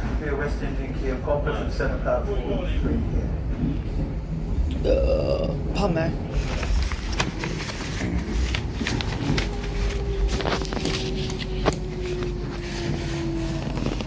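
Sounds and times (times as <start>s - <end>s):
station rumble: 0.0s - 14.0s
footsteps: 6.4s - 14.0s.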